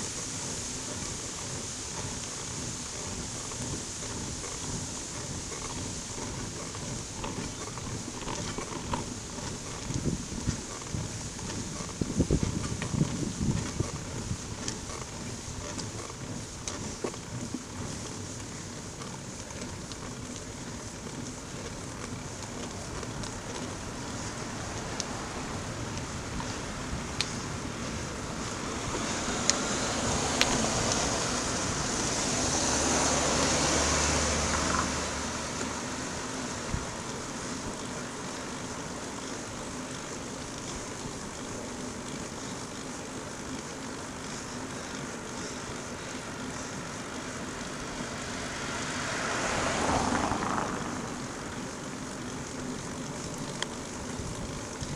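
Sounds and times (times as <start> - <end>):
steady background hiss: 0.0 - 54.9
vehicle passing: 22.0 - 54.8.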